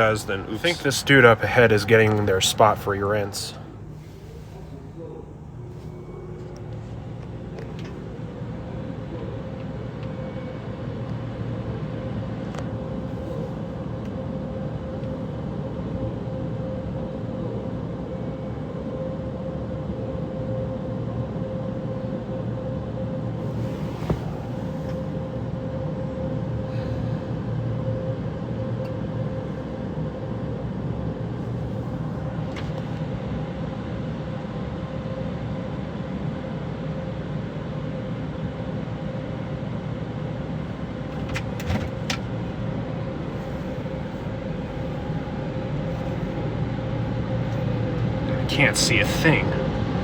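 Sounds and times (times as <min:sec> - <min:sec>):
car idling hum: 0:00.0 - 0:16.1, 0:23.3 - 0:27.4, 0:40.4 - 0:50.0
constant tone: 0:00.0 - 0:18.8.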